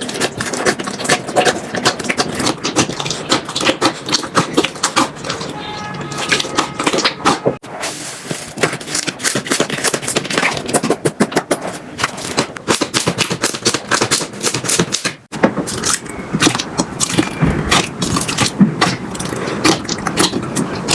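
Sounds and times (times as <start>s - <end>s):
slime crackling and popping: 6.1s - 20.9s.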